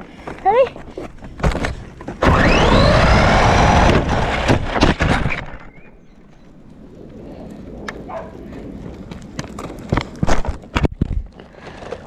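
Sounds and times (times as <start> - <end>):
rc car motor whining: 2.2 - 4.7
rc car crashing bangs: 2.2 - 5.9.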